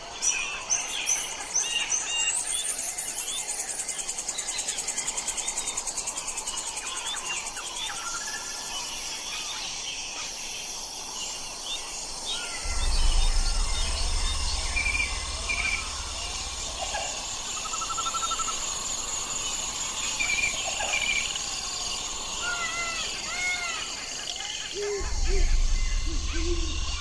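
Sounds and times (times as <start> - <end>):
insects chirping: 0.0 - 27.0
birds chirping and whistling: 12.3 - 18.6, 24.4 - 27.0
low rumble: 12.6 - 19.2, 25.0 - 27.0.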